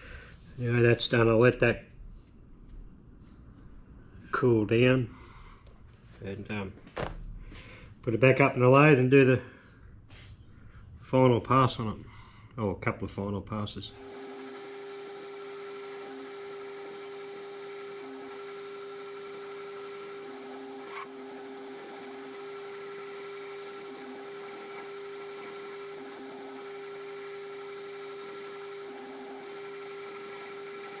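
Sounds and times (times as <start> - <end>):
metal lathe whining: 13.9 - 31.0.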